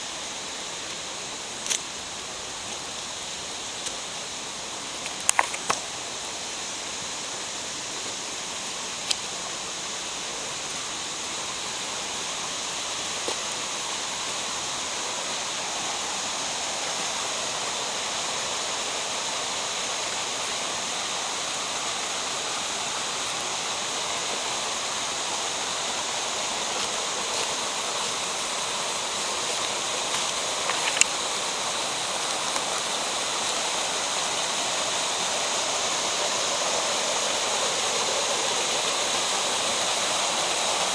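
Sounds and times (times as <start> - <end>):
stream water rushing: 0.0 - 40.9
sharp clicks: 5.0 - 5.8, 30.3 - 31.2.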